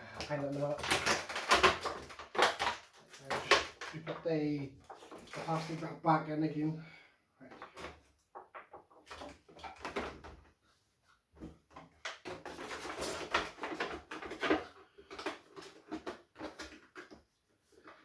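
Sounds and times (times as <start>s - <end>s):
stiff plastic crinkling: 0.1s - 6.0s.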